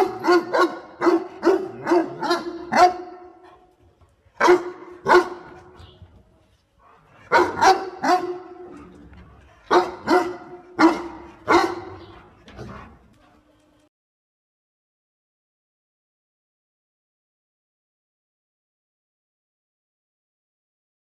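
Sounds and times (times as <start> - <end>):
dog barking: 0.0 - 3.6, 4.4 - 5.7, 6.8 - 8.9, 9.6 - 12.9.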